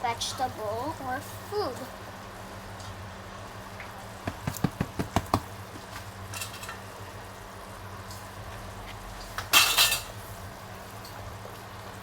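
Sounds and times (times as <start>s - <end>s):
pot and utensils clinking: 9.5s - 10.2s.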